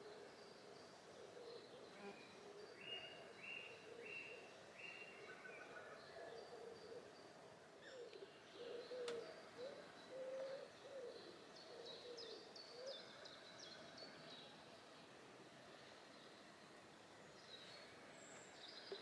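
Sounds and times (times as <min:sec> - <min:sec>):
soft low cooing: 0:07.8 - 0:14.5.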